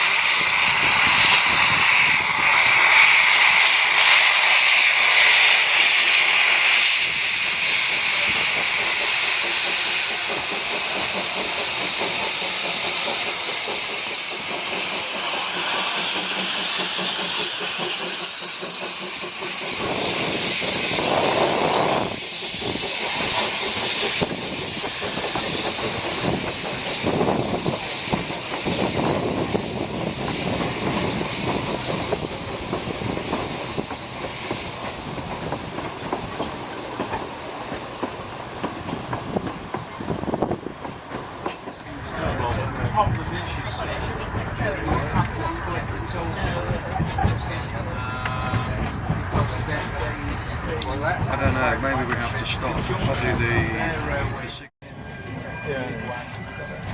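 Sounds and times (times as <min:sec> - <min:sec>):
heavy train sounds: 0:00.0 - 0:56.9
steam locomotive hissing steam: 0:00.0 - 0:56.9.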